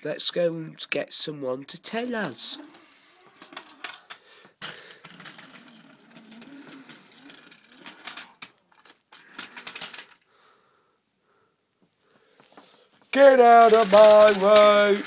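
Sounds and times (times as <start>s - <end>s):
toy train motor whirring: 2.4s - 4.2s, 4.9s - 10.2s, 13.2s - 15.0s
wheels clattering on plastic track: 2.4s - 10.2s, 13.1s - 15.0s.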